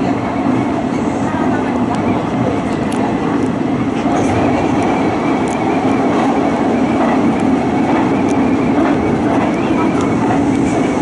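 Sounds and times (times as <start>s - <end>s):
train wheels rumbling: 0.0s - 11.0s.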